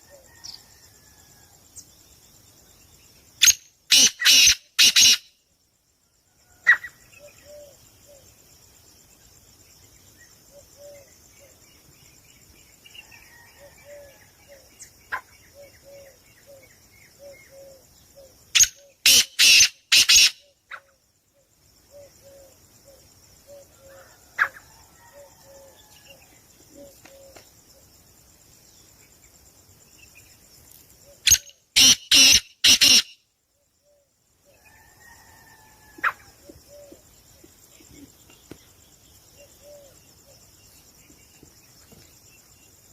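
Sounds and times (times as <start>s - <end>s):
loud harsh bird bursts: 3.4s - 5.3s, 18.6s - 20.5s, 31.3s - 33.2s
thin bird trill: 3.4s - 5.4s, 18.6s - 20.6s, 31.2s - 33.2s.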